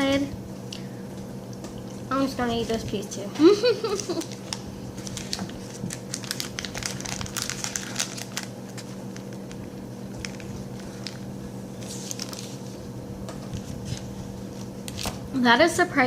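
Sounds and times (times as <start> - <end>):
chocolate bar crackling: 3.7 - 15.2
chocolate wrapper crinkling: 3.8 - 12.8.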